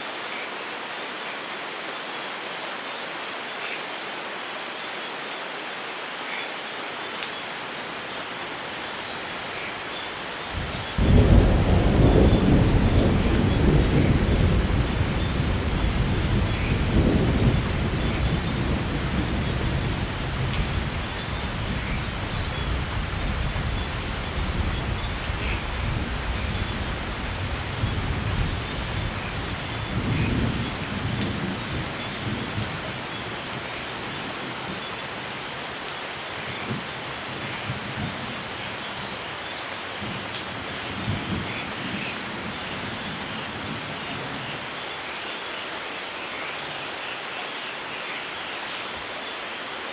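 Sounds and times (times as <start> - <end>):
heavy rain: 0.0 - 49.9
rolling thunder: 10.6 - 32.8.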